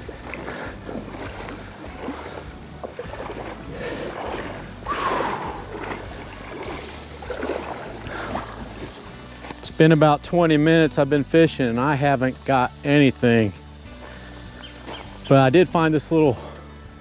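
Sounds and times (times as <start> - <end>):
water splashing around legs: 0.0 - 10.9, 13.9 - 16.1.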